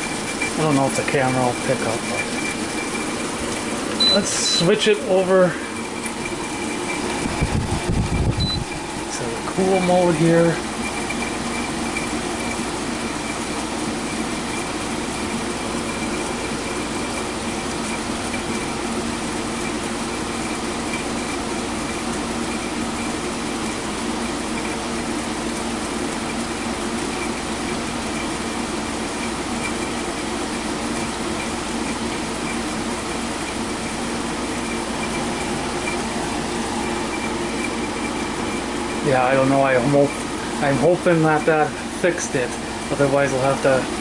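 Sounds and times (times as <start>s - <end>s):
thin high whine: 0.0s - 13.5s, 33.4s - 44.0s
air conditioner fan rushing: 0.0s - 44.0s.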